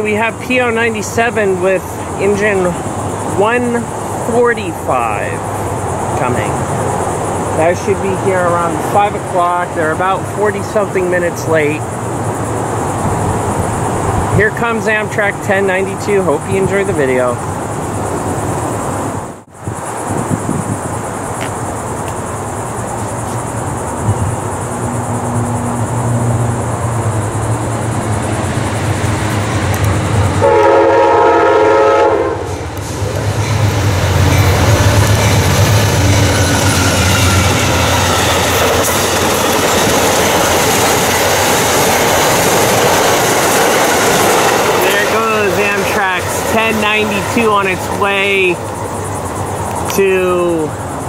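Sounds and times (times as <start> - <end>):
diesel locomotive rumble: 0.0 - 51.0
train horn blast: 30.4 - 32.5
wheels clattering over rail joints: 32.5 - 50.0.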